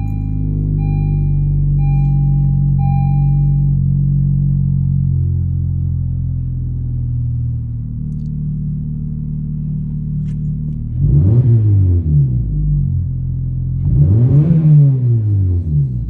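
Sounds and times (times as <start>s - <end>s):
car engine idling: 0.0s - 11.3s
engine revving: 10.9s - 12.8s, 13.8s - 16.0s.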